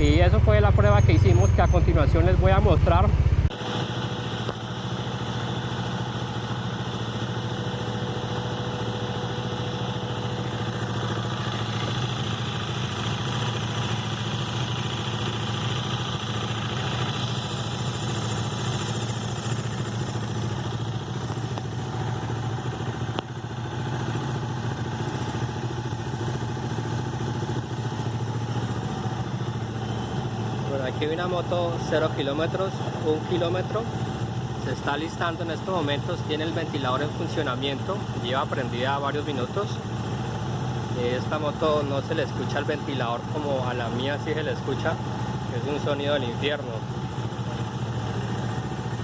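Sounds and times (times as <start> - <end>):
cooling fan shrill whine: 0.0 - 3.0
motorcycle engine idling: 0.0 - 49.0.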